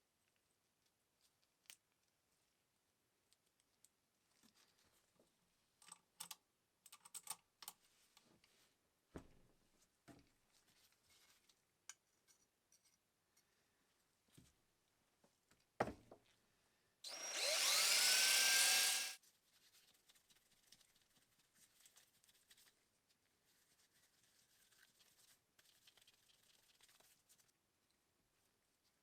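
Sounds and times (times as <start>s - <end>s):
sewing machine motor whine: 17.1s - 19.2s.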